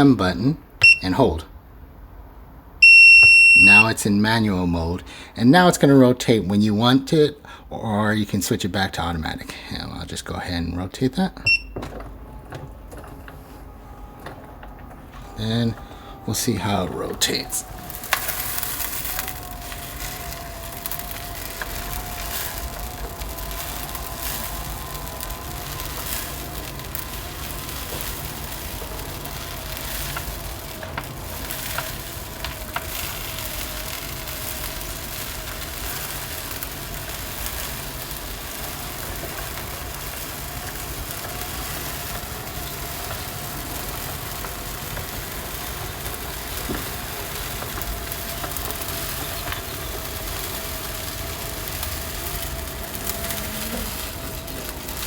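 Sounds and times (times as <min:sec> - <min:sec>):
motor whine: 0:11.6 - 0:55.0.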